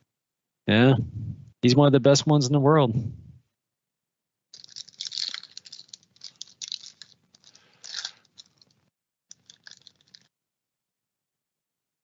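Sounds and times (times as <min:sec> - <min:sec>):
foil wrapping crinkling: 0:04.6 - 0:10.3.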